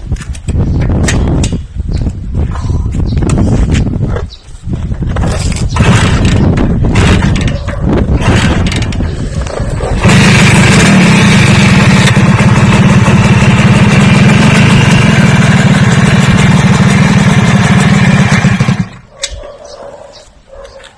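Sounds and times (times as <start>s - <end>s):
motor running loudly: 5.8s - 7.6s, 8.2s - 19.0s.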